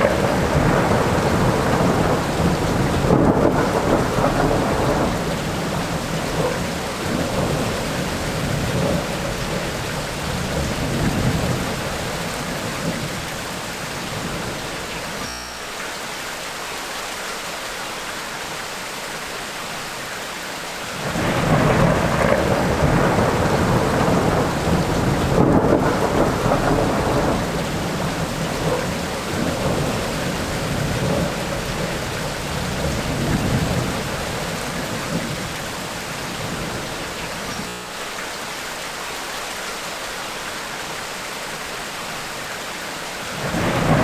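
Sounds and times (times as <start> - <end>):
rolling thunder rumble: 0.0 - 15.2, 20.9 - 37.6, 43.3 - 44.0
heavy rain: 0.0 - 44.0.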